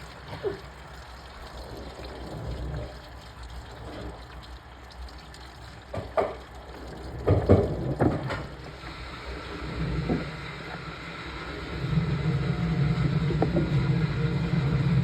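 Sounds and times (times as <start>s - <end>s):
washing machine running: 0.0s - 15.0s
water sloshing in drum: 0.0s - 15.0s
knocks in washing machine: 7.2s - 8.6s, 13.2s - 13.9s.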